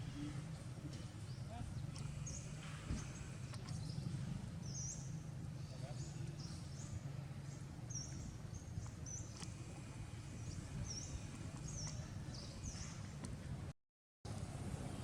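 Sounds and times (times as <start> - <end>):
low outdoor rumble: 0.0 - 13.7, 14.3 - 15.0
small bird chirping: 1.2 - 13.0.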